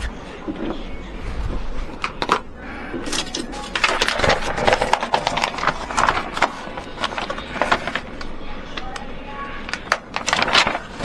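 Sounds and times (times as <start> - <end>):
hard objects clicking and rattling: 2.0 - 9.0.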